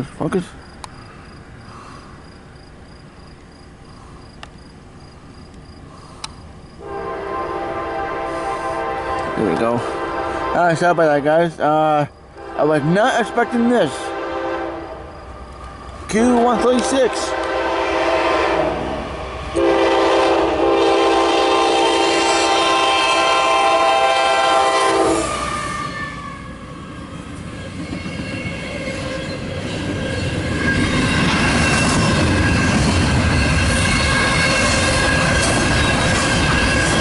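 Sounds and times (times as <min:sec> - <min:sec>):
train rumble and wheel clatter: 0:00.0 - 0:37.0
locomotive horn blast: 0:06.8 - 0:10.9, 0:12.4 - 0:15.0, 0:16.2 - 0:26.6.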